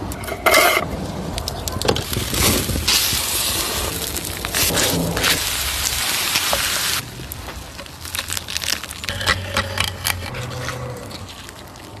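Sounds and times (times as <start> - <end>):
campfire crackling and popping: 0.9 - 10.4
loud hiss: 2.2 - 7.0.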